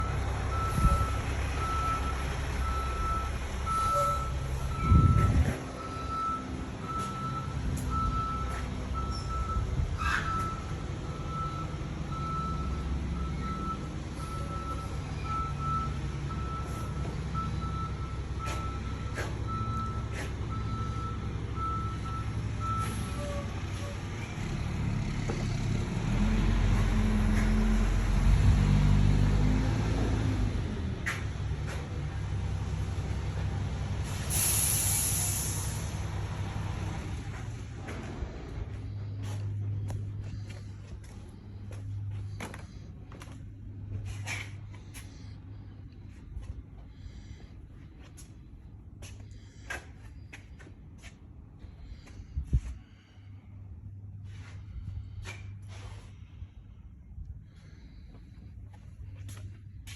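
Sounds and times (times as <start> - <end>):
reversing alarm beeping: 0.0 - 24.0
low engine rumble: 0.0 - 59.9.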